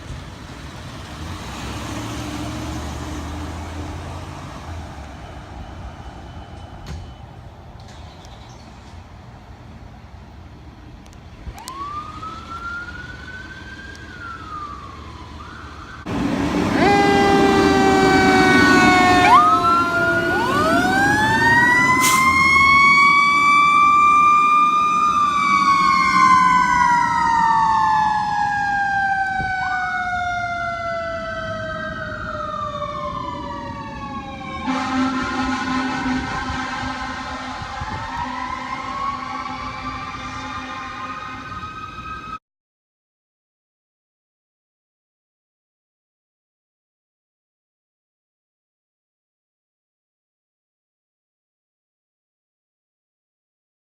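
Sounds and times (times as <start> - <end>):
siren wailing: 4.2 - 7.2, 11.5 - 42.4
steady horn: 16.5 - 19.4, 34.6 - 39.2.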